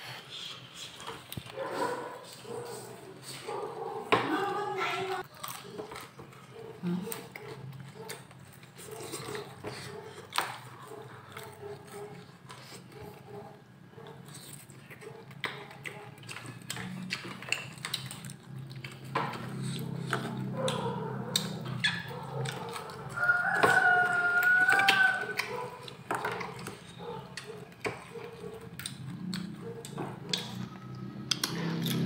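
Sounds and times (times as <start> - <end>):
chewing and crunching fried fish: 0.0 - 4.1, 5.2 - 32.0
rooster crowing: 23.0 - 25.5.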